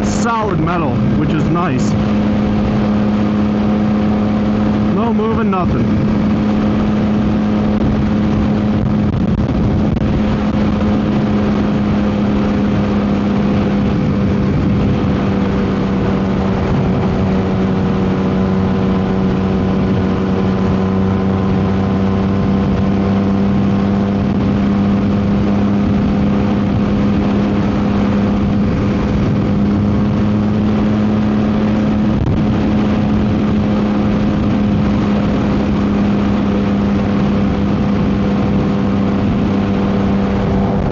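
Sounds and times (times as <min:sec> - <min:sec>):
motorcycle engine cruising drone: 0:00.0 - 0:40.9
wind noise on microphone: 0:00.0 - 0:40.9.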